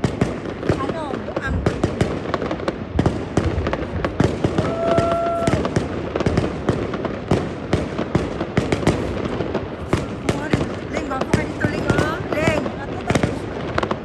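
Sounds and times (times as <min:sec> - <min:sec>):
fireworks bangs and crackles: 0:00.0 - 0:14.0
firework whistle: 0:04.2 - 0:06.6.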